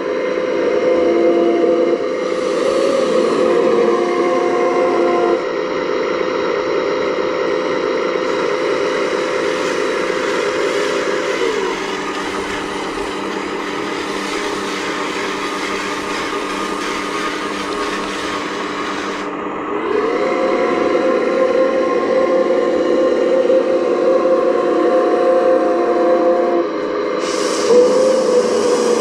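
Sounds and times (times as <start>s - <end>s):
model excavator motors whining: 8.2s - 23.4s.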